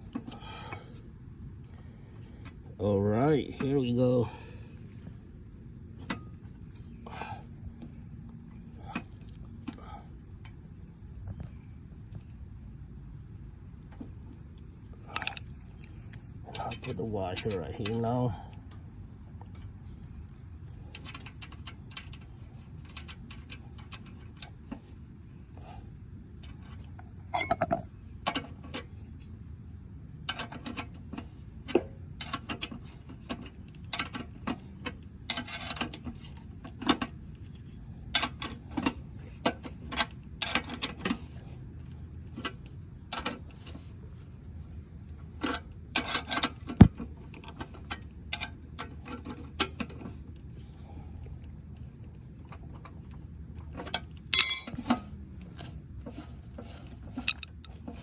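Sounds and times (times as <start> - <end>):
metal parts and tools clinking: 54.4 - 55.7.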